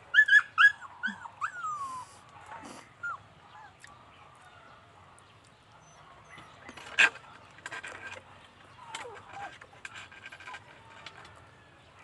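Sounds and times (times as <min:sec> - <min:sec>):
dog yelping: 0:00.1 - 0:02.0
dog whining: 0:00.2 - 0:02.1.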